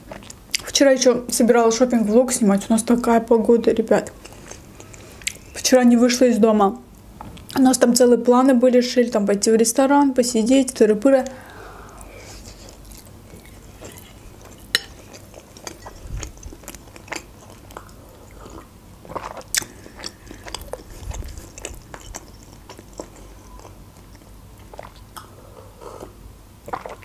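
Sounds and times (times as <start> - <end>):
person chewing and swallowing: 11.3 - 27.0.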